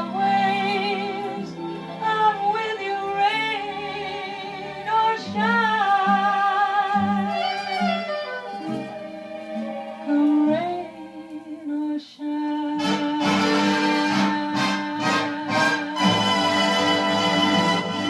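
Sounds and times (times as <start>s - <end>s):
orchestra playing closing chords: 12.8s - 18.0s.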